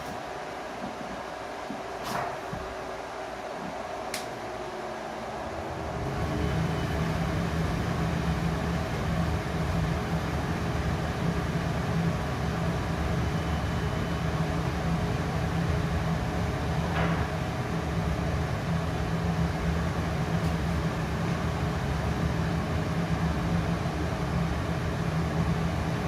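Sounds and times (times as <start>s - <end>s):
laser cutter humming: 2.6s - 16.8s.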